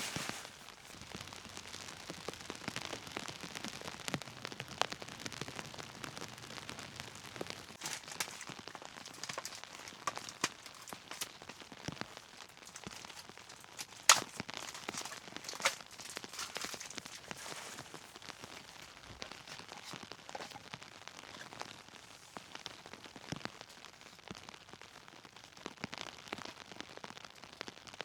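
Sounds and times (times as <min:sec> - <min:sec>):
steady rain: 0:00.0 - 0:28.0
sharp clicks and pops: 0:00.9 - 0:21.6
loud crack: 0:01.5 - 0:18.0.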